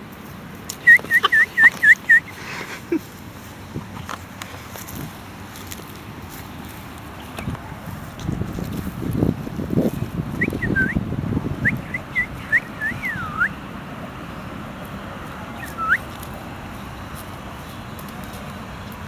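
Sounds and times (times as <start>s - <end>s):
parrot whistled chirps: 0.8s - 2.3s, 10.4s - 11.0s, 11.6s - 13.6s, 15.6s - 16.0s.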